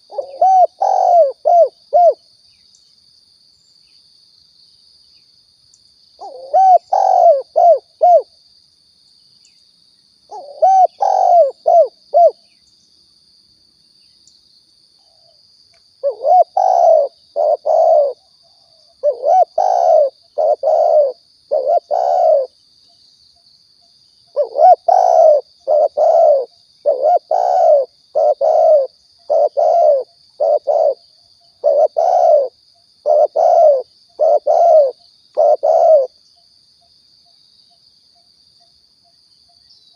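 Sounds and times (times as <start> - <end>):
doves cooing: 0.0 - 2.2, 6.2 - 8.3, 10.3 - 12.4, 16.0 - 18.2, 19.0 - 22.5, 24.4 - 31.0, 31.6 - 36.1.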